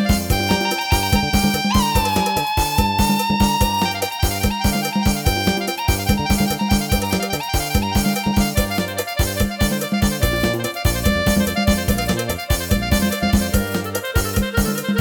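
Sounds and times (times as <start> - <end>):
drum beat and bass: 0.0 - 15.0
keyboard lead melody: 0.0 - 15.0.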